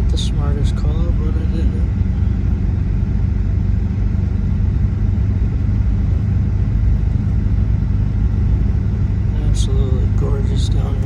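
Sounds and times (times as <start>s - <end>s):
vehicle driving on snow: 0.0s - 11.0s.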